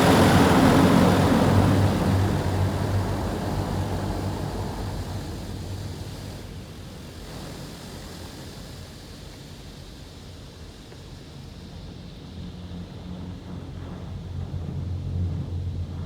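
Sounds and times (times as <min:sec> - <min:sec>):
low hum: 0:00.0 - 0:06.5.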